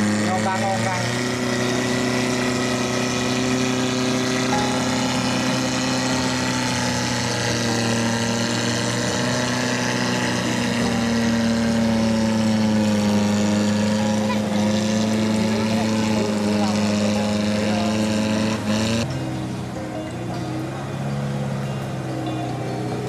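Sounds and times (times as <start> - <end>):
off-road vehicle engine running: 0.0 - 23.0.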